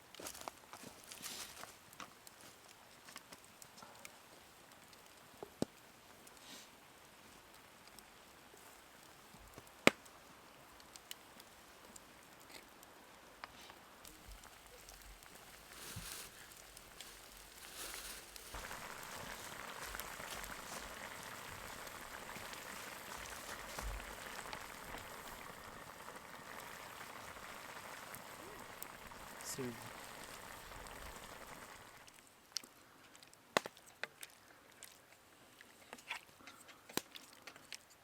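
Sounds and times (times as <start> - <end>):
food sizzling in a pan: 14.1 - 32.1.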